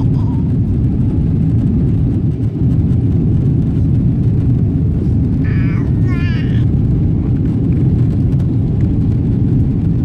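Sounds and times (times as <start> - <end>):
aircraft engines rumbling in cabin: 0.0 - 10.0.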